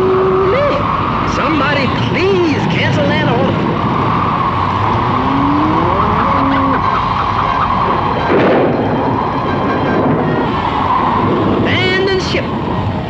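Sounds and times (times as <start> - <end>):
howling wind: 0.0 - 13.0.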